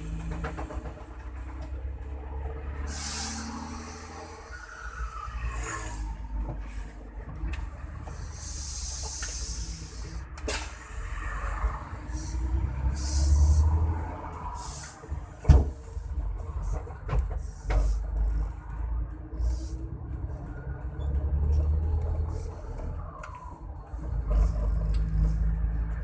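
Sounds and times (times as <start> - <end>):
diesel engine rumbling: 0.0 - 26.0
short air hisses: 2.8 - 6.2, 8.1 - 11.0, 12.1 - 13.8, 14.6 - 15.0.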